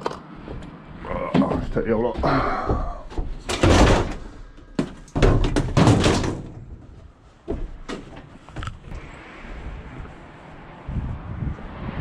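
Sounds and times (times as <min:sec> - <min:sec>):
vehicle doors slamming: 0:03.4 - 0:06.8.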